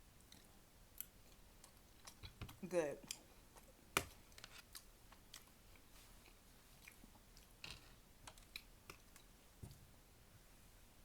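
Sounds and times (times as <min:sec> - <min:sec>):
mouth chewing food: 0:04.7 - 0:07.6.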